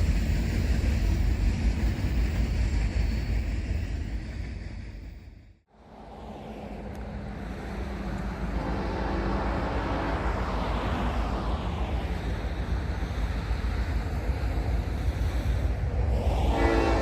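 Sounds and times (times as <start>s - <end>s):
diesel locomotive engine drone: 0.0s - 17.0s
low rail rumble: 0.0s - 17.0s.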